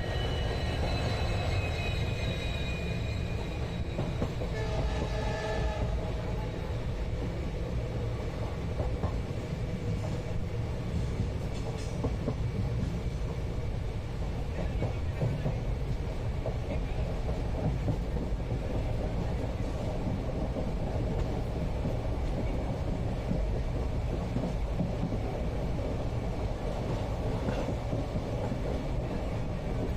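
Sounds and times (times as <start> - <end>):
train rumble inside carriage: 0.0 - 29.9.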